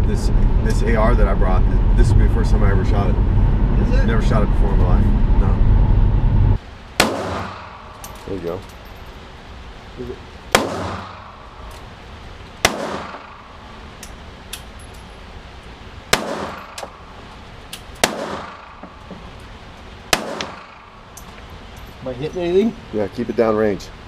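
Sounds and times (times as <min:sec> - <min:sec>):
rifle shots echoing: 0:07.0 - 0:08.3, 0:10.5 - 0:11.7, 0:12.6 - 0:13.8, 0:16.1 - 0:17.2, 0:18.0 - 0:19.1, 0:20.1 - 0:21.1.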